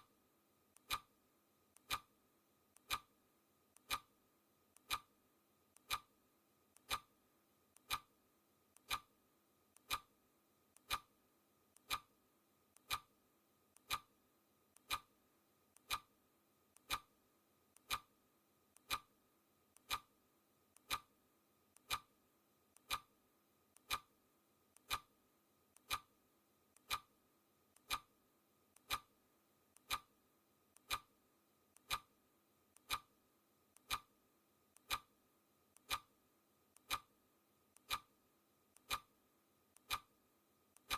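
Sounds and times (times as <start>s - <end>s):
clock ticking: 0.8s - 1.1s, 1.7s - 2.1s, 2.7s - 3.1s, 3.7s - 4.1s, 4.7s - 5.1s, 5.7s - 6.1s, 6.7s - 7.1s, 7.7s - 8.1s, 8.7s - 9.1s, 9.7s - 10.1s, 10.7s - 11.1s, 11.7s - 12.1s, 12.7s - 13.1s, 13.7s - 14.1s, 14.7s - 15.1s, 15.7s - 16.1s, 16.7s - 18.1s, 18.7s - 20.1s, 20.7s - 21.1s, 21.7s - 27.2s, 27.8s - 29.1s, 29.7s - 30.2s, 30.8s - 40.2s.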